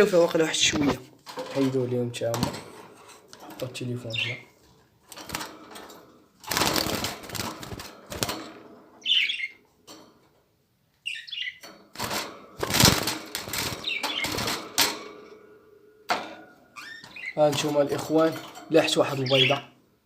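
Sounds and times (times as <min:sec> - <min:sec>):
budgerigars flapping wings against cage: 0:06.5 - 0:08.5, 0:12.0 - 0:15.0
high bird chirps: 0:09.0 - 0:09.6, 0:11.0 - 0:11.6, 0:13.8 - 0:14.4, 0:16.8 - 0:17.4.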